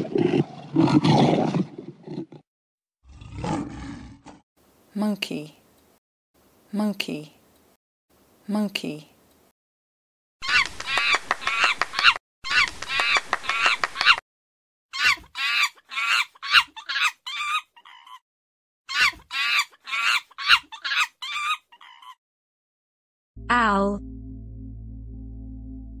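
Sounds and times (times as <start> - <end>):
monkey calls: 10.4 - 14.2, 14.9 - 18.2, 18.9 - 22.2.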